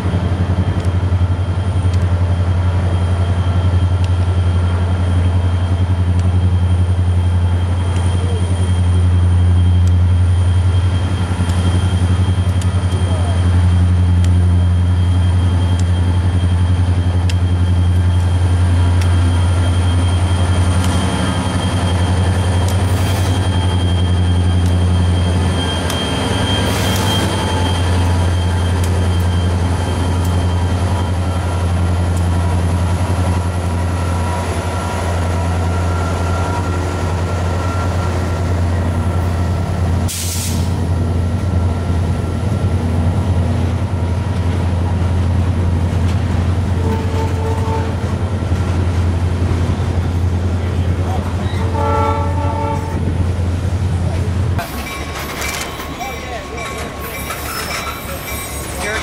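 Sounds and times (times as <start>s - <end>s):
diesel locomotive engine drone: 0.0s - 59.0s
air brake hisses: 40.1s - 40.8s.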